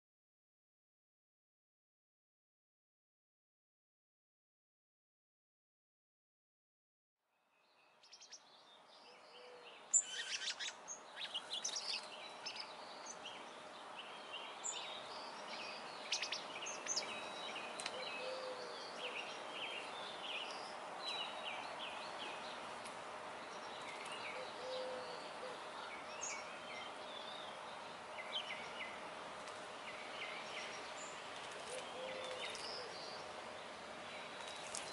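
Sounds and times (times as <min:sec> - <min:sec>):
small birds chirping: 0:07.6 - 0:34.9.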